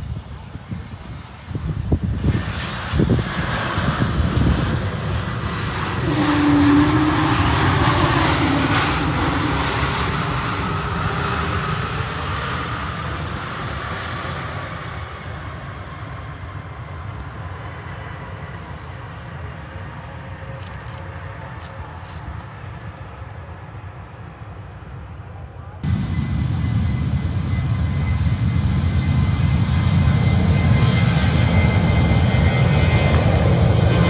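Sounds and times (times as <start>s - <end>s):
airliner engine passing overhead: 0.0s - 34.0s.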